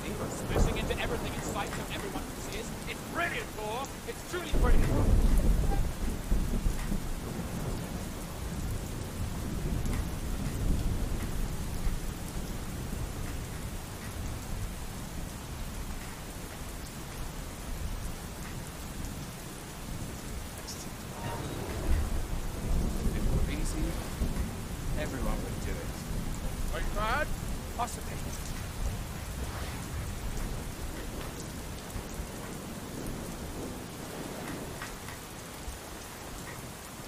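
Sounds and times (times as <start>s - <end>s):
low rolling thunder: 0.0s - 36.9s
heavy rain pouring: 0.0s - 37.0s.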